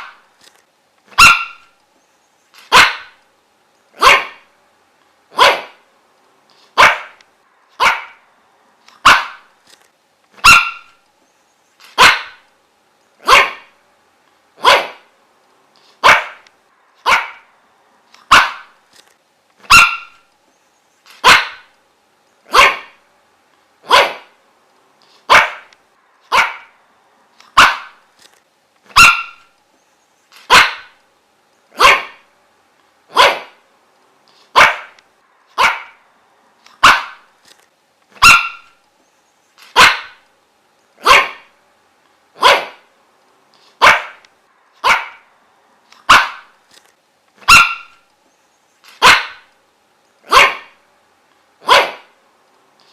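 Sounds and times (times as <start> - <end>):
dog barking: 1.1 - 1.7, 2.7 - 3.2, 4.0 - 4.5, 5.3 - 5.8, 6.8 - 7.2, 7.8 - 8.2, 9.0 - 9.5, 10.4 - 11.0, 12.0 - 12.4, 13.2 - 13.8, 14.6 - 15.1, 16.0 - 16.4, 17.0 - 17.5, 18.3 - 18.8, 19.6 - 20.2, 21.2 - 21.7, 22.5 - 23.0, 23.8 - 24.4, 25.3 - 25.7, 26.3 - 26.8, 27.5 - 28.0, 28.9 - 29.5, 30.5 - 31.0, 31.8 - 32.3, 33.1 - 33.6, 34.5 - 35.0, 35.6 - 36.0, 36.8 - 37.3, 38.2 - 38.8, 39.7 - 40.2, 41.0 - 41.5, 42.4 - 42.9, 43.8 - 44.2, 44.8 - 45.3, 46.0 - 46.5, 47.4 - 48.0, 49.0 - 49.5, 50.3 - 50.8, 51.6 - 52.2.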